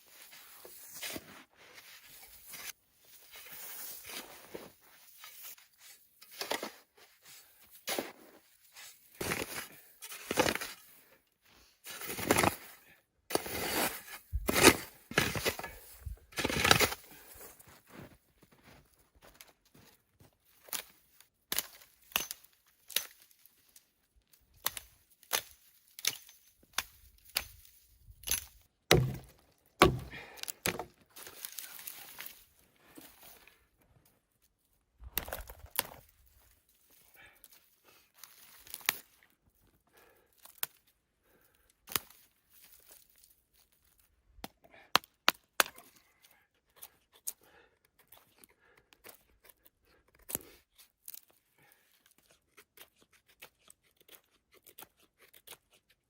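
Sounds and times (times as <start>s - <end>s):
sharp cracks and knocks: 28.2s - 31.0s.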